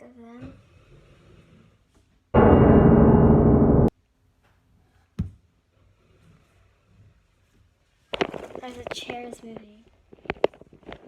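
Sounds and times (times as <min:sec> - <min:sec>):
piano-like chord: 0:02.4 - 0:03.9.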